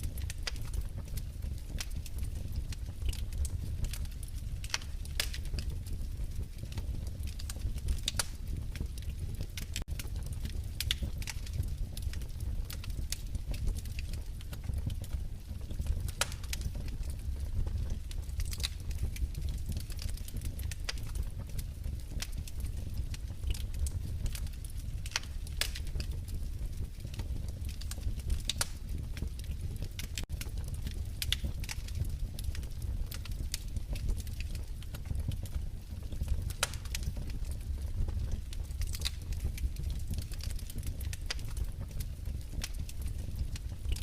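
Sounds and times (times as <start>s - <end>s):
fire low rumble: 0.0s - 44.0s
fire pops and snaps: 0.0s - 44.0s.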